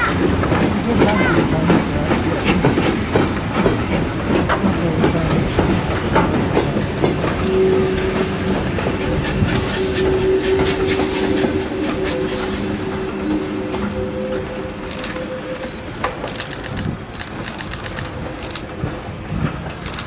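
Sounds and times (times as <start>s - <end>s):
train wheels clattering on rails: 0.0s - 20.0s
steady tone: 7.2s - 16.9s
high wheel squeals: 7.4s - 16.0s.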